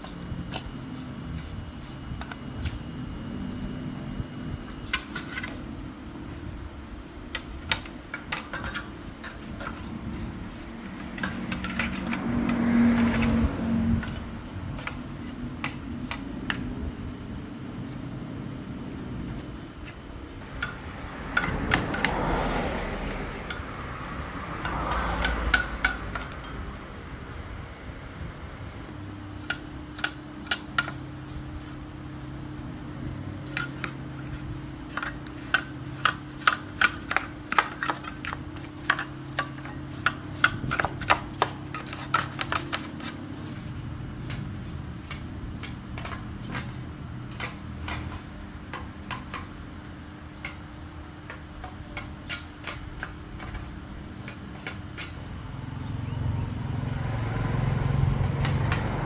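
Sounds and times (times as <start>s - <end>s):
steady low hum: 0.0s - 59.0s
hand tools tapping and clicking: 7.4s - 16.7s, 19.4s - 26.6s, 33.4s - 49.6s, 57.7s - 59.0s
rough rubbing noise: 8.6s - 16.4s.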